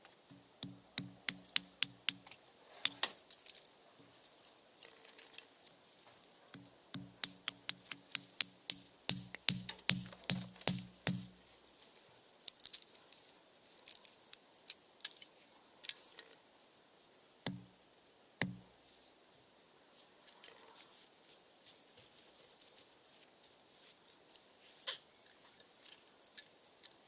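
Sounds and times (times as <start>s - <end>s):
hollow knocks: 0.3s - 2.3s, 6.6s - 11.4s, 17.5s - 17.7s, 18.4s - 18.7s.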